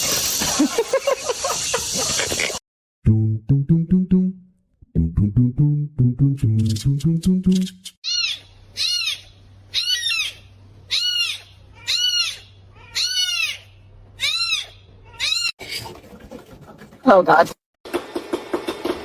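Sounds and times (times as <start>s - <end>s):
small animal high-pitched calls: 8.0s - 15.5s.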